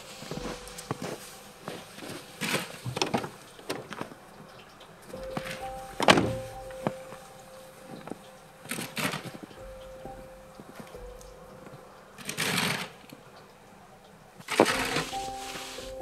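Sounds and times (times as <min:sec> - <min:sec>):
footsteps crunching in snow: 0:00.0 - 0:02.9, 0:14.6 - 0:16.0
soft background music: 0:00.0 - 0:16.0.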